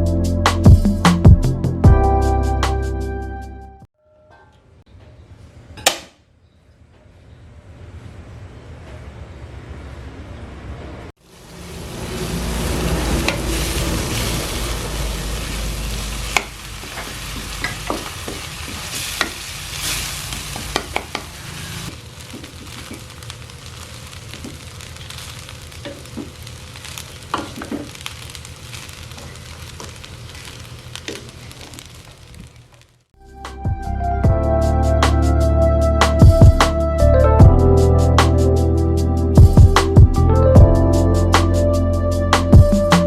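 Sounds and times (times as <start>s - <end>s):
food sizzling in a pan: 11.2s - 33.0s.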